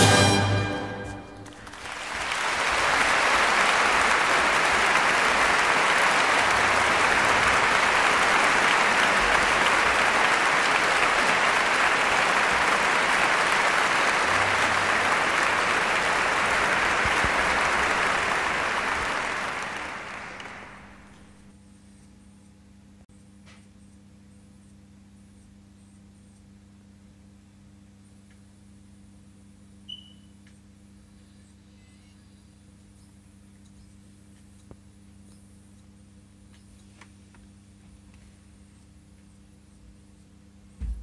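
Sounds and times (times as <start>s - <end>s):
crowd applause: 0.0s - 21.5s.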